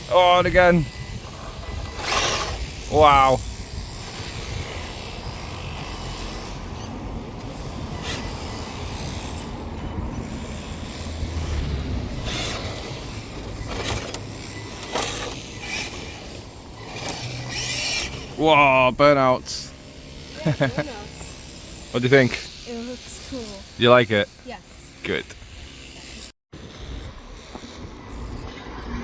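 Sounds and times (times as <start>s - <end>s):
tyres spinning: 0.0s - 22.3s
rc car motor revving: 0.0s - 29.0s.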